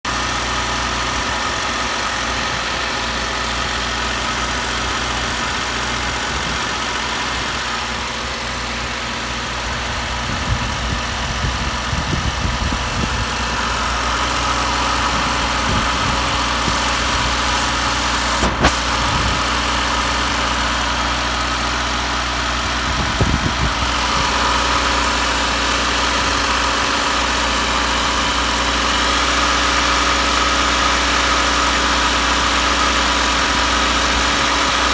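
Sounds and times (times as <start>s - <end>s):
car engine idling: 0.1s - 34.9s
sharp click: 16.0s - 19.4s.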